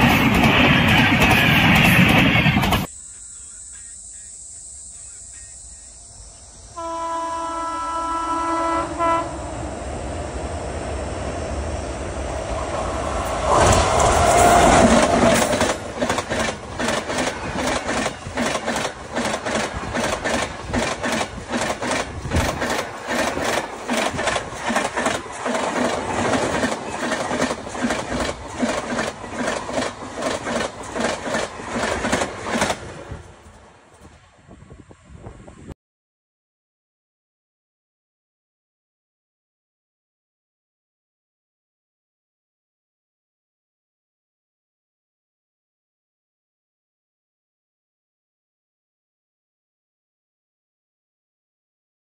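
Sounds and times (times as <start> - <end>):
passenger train passing: 0.0 - 4.3, 4.9 - 35.7
train horn: 6.7 - 10.0
wheels clacking over rail joints: 13.2 - 34.1.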